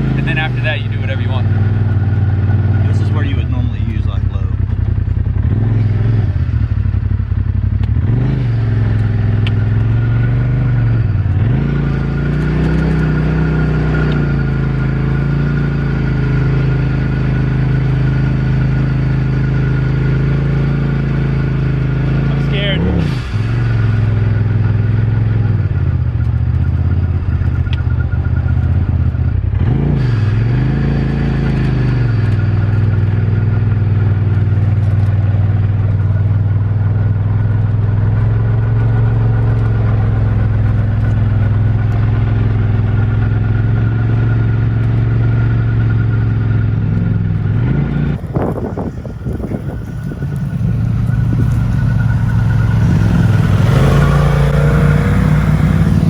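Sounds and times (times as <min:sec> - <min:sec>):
engine running under load: 0:00.0 - 0:56.0
thin steady whine: 0:48.0 - 0:56.0.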